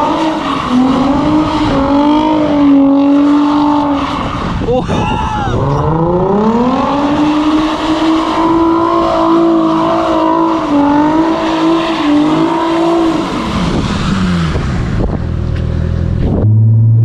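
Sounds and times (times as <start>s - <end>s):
car engine revving hard: 0.0s - 4.7s, 5.6s - 15.2s.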